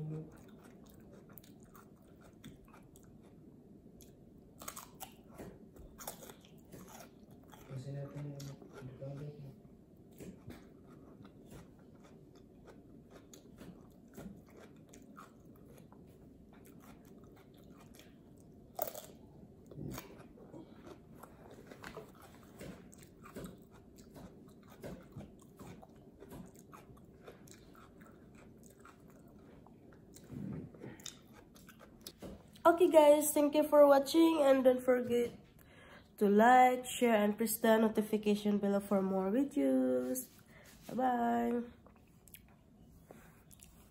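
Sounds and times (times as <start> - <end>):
crunching and chewing cucumber: 0.0 - 32.7, 41.8 - 43.9.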